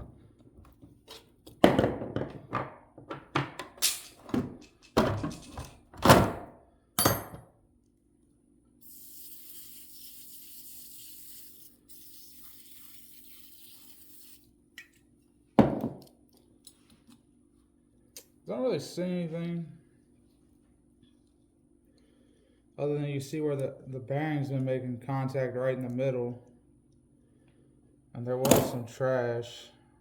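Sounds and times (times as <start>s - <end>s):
metal parts knocking and clanking: 2.2s - 6.0s.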